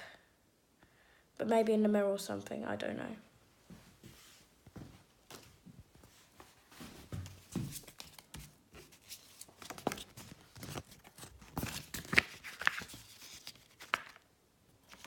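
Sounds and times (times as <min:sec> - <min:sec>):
paper map rustling and crinkling: 0:03.7 - 0:15.0.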